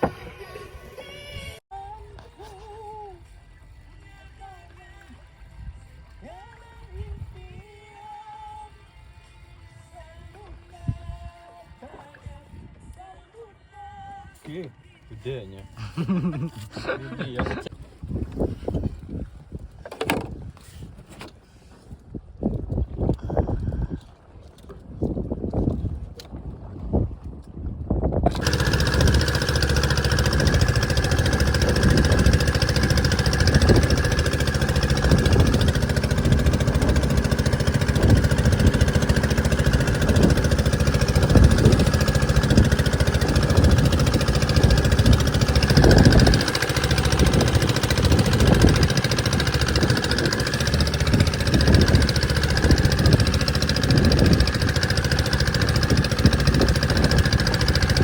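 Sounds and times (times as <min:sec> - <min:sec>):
boat engine running: 0:00.0 - 0:01.6, 0:28.3 - 0:58.0.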